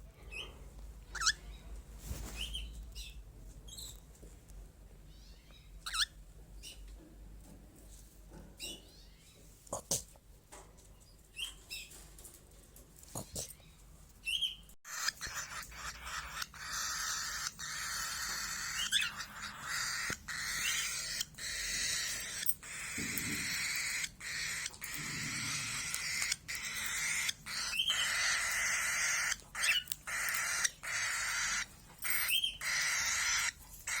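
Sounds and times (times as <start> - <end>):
cage birds chirping: 0.0 - 9.6, 10.4 - 34.0.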